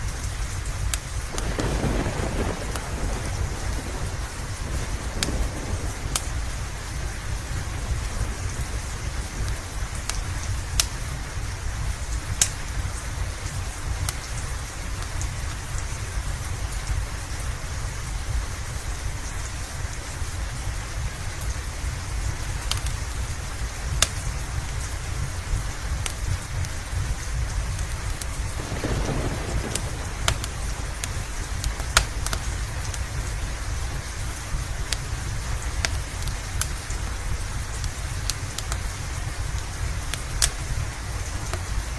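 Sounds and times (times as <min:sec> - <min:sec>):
low continuous rumble: 0:00.0 - 0:41.9
rain hissing: 0:00.0 - 0:41.9
fireplace crackling: 0:00.1 - 0:17.4, 0:20.2 - 0:41.9.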